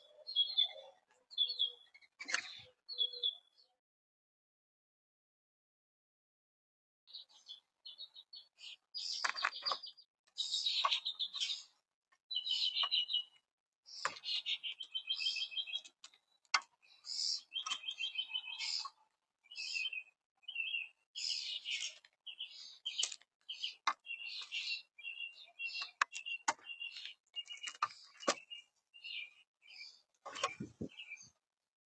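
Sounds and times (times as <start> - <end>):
woodpeckers chattering: 7.9 - 31.3.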